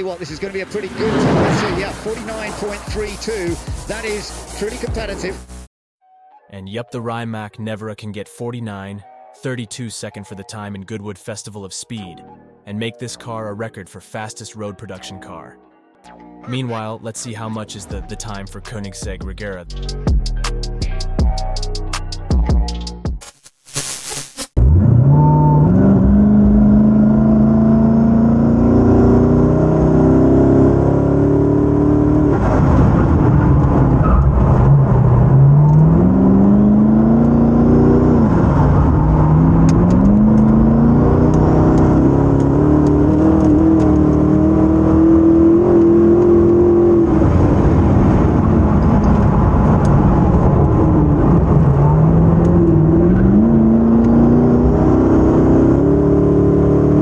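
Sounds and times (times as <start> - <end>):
car engine accelerating hard: 24.6 - 57.0.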